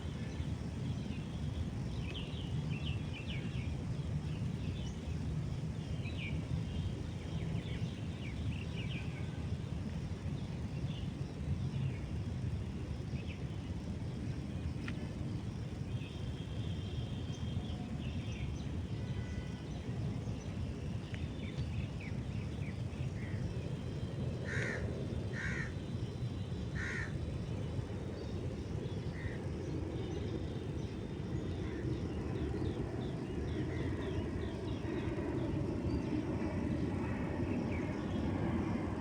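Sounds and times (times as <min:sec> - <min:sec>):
crow cawing: 0:24.5 - 0:25.7, 0:26.8 - 0:27.1.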